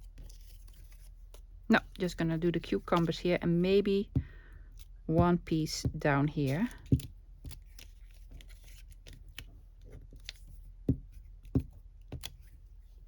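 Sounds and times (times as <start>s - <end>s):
paper rustling: 0.0s - 3.6s, 5.9s - 10.6s
light taps on paper: 5.1s - 12.5s.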